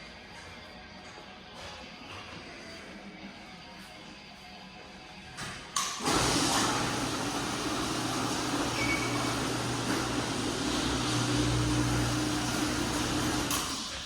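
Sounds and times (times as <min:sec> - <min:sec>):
mechanical running noise with hum: 0:06.0 - 0:14.0.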